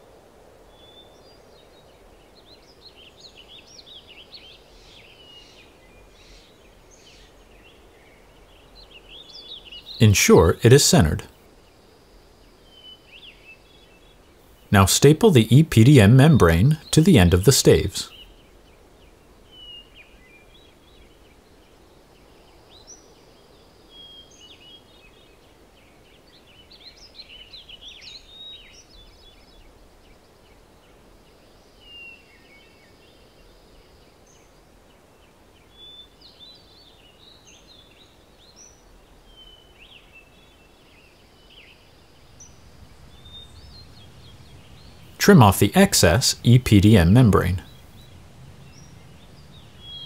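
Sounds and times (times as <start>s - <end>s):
faint outdoor hum: 0.0s - 19.6s, 38.5s - 50.0s
small birds chirping: 0.7s - 50.0s.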